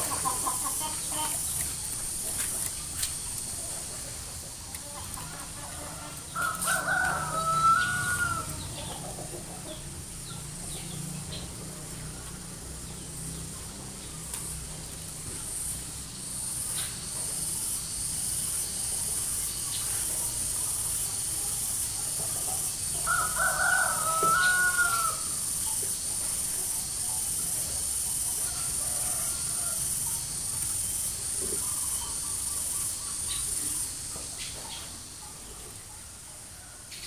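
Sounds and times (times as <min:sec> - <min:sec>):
bird calling: 0:00.0 - 0:03.7
pulsing insect buzz: 0:00.0 - 0:34.5.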